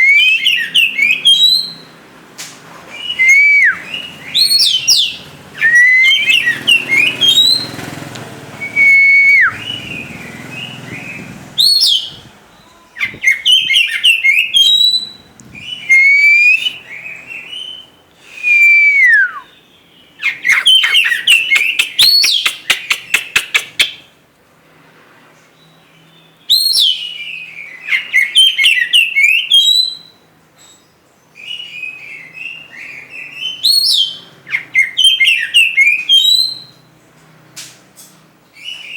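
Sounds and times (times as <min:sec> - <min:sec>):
bird singing whistled phrases: 0:00.0 - 0:01.9, 0:03.0 - 0:07.7, 0:08.6 - 0:19.6, 0:20.2 - 0:24.0, 0:26.4 - 0:30.1, 0:31.4 - 0:36.8.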